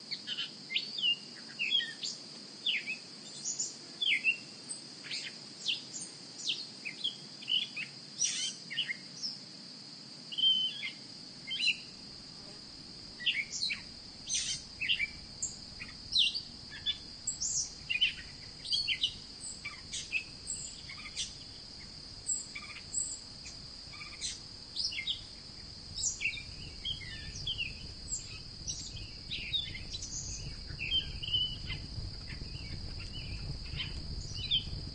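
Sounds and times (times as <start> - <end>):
steady high-pitched hum: 10.9 - 34.9
birds chirping: 26.0 - 34.9.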